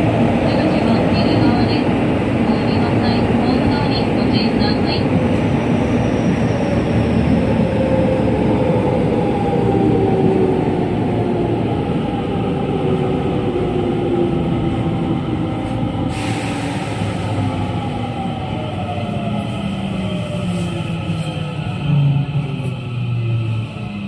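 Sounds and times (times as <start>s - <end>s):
hiss: 16.1s - 17.3s.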